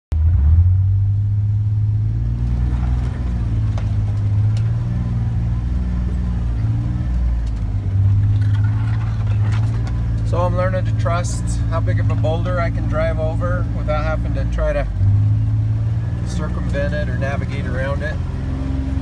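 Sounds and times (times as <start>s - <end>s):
utility vehicle engine running: 0.2s - 19.0s
knocks and rattles: 8.0s - 10.2s.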